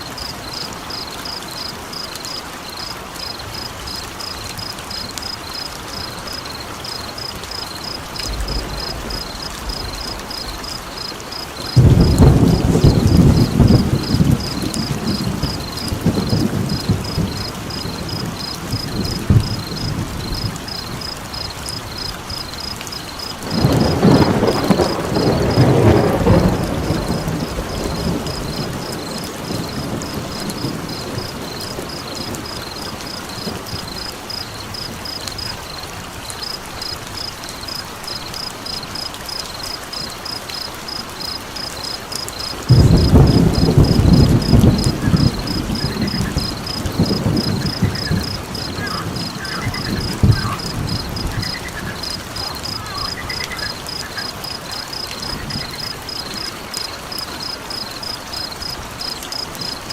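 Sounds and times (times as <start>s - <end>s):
rain: 0.0s - 59.9s
frog chirping: 0.2s - 25.8s, 37.6s - 59.9s
fire crackling: 2.7s - 59.9s
low thunder rumbles: 3.5s - 37.4s, 41.2s - 59.9s.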